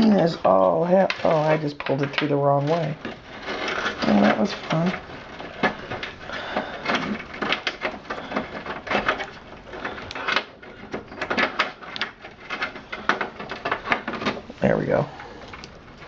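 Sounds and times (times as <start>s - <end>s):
cables scraping against computer case: 0.0s - 16.0s.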